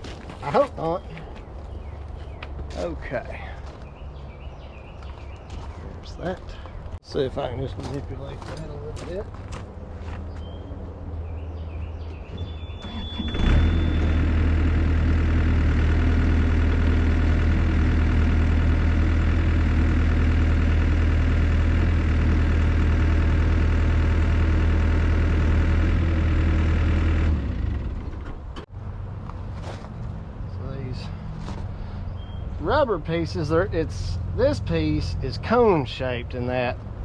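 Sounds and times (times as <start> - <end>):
excavator diesel engine revving: 12.8 - 28.6.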